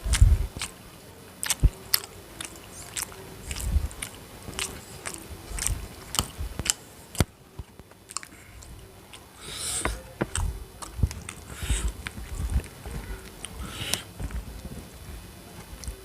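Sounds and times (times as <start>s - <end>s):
person chewing food: 0.0s - 0.8s, 1.4s - 14.4s
mouth clicks: 1.4s - 14.3s
breathy hisses: 8.3s - 10.3s, 11.4s - 12.1s, 13.4s - 14.2s.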